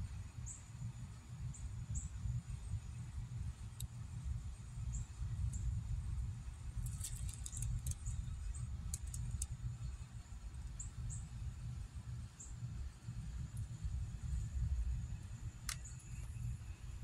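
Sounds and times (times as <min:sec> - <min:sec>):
constant low rumble: 0:00.0 - 0:17.0
small birds chirping and ticking: 0:06.7 - 0:11.4.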